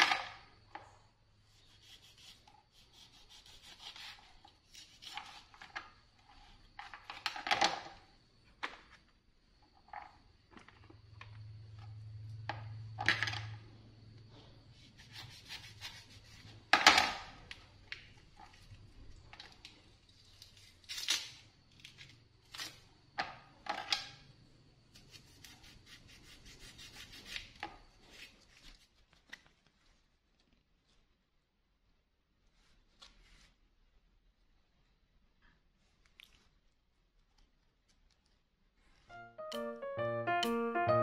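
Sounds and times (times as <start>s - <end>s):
fruit peel tearing: 20.2s - 22.8s.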